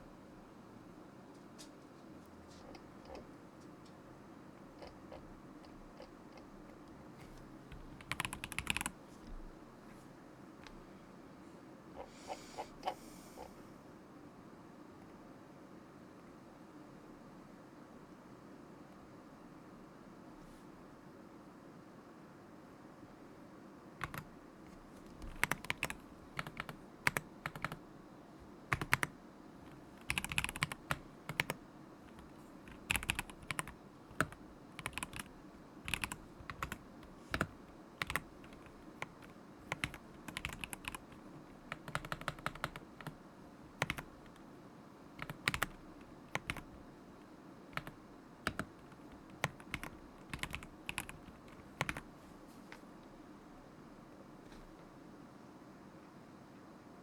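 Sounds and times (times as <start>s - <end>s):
mechanical keyboard typing: 2.7s - 3.2s, 4.8s - 6.5s, 7.7s - 9.0s, 24.0s - 24.3s, 25.2s - 27.8s, 28.7s - 43.2s, 43.8s - 44.4s, 45.2s - 46.8s, 47.7s - 52.1s.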